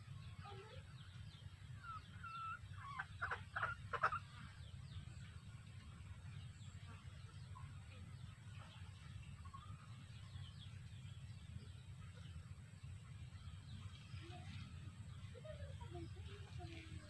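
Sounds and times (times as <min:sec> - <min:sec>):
birds calling: 0:00.0 - 0:17.0
low background rumble: 0:00.0 - 0:17.0
harsh bird calls: 0:00.4 - 0:05.2.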